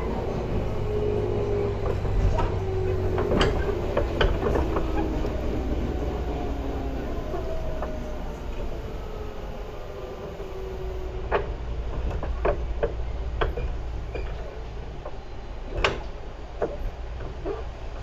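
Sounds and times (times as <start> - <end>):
train wheels rumbling on rail: 0.0 - 18.0
wheels clacking over track joints: 0.0 - 18.0.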